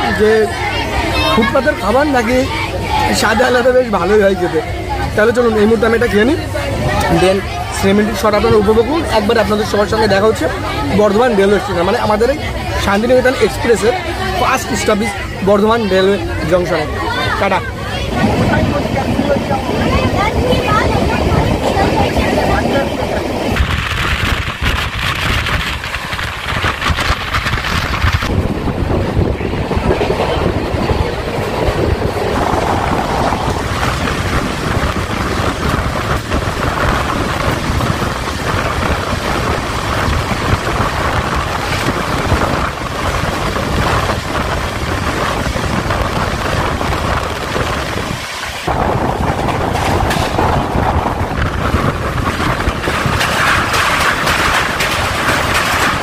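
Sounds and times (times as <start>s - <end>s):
train wheels rumbling on track: 0.0s - 56.0s
rushing air: 16.8s - 56.0s.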